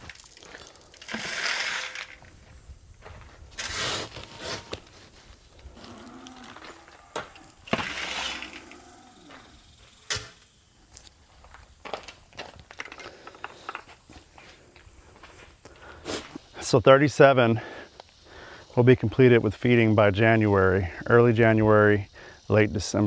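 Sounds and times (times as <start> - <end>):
calves mooing: 5.7 - 9.6.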